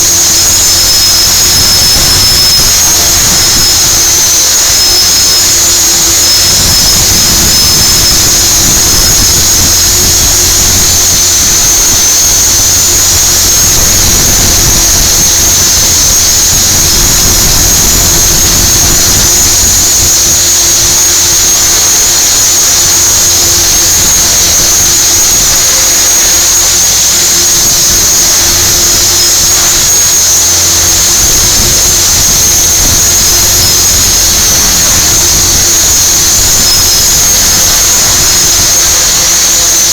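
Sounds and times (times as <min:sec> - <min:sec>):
low hum: 0:00.0 - 0:39.9
rc helicopter rotor whine: 0:00.0 - 0:39.9.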